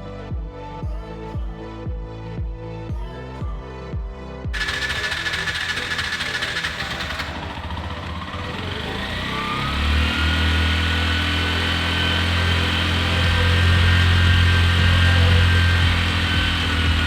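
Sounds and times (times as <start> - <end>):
three-wheeler petrol engine running: 4.5 - 17.0.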